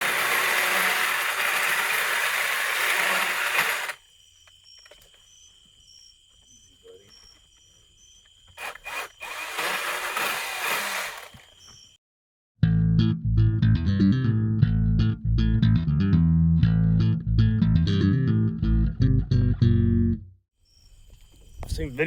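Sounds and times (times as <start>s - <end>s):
chainsaw cutting wood: 0.0s - 4.0s, 8.6s - 11.6s.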